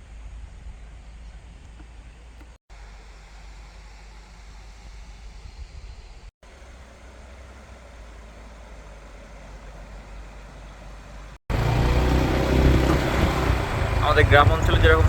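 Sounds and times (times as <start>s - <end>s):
road rumble: 0.0s - 15.0s
wind-like hiss: 2.8s - 6.3s.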